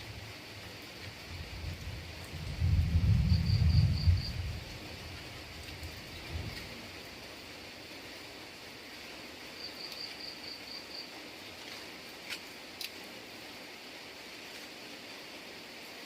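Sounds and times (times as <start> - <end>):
insect-like background: 0.0 - 16.0
rain hissing: 0.0 - 16.0.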